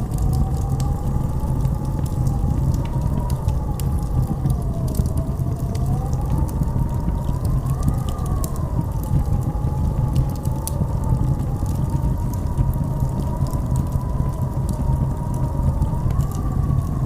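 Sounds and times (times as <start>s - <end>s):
blizzard wind howling: 0.0s - 17.0s.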